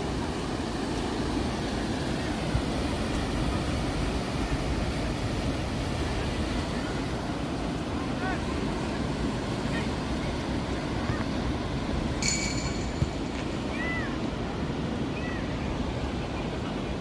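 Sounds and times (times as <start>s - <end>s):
sea waves washing ashore: 0.0s - 17.0s
high whistle-like tone: 12.2s - 13.1s.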